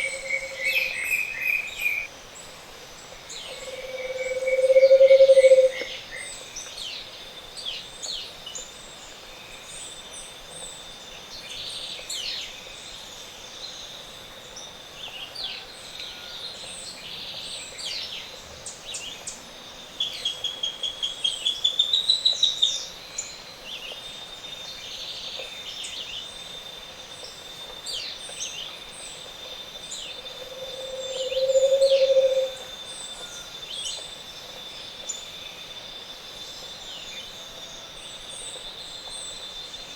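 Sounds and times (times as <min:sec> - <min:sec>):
low hollow hooting: 0:03.6 - 0:05.8, 0:30.3 - 0:32.8
thin steady high tone: 0:30.4 - 0:33.5
fast rising bird trill: 0:31.0 - 0:32.5.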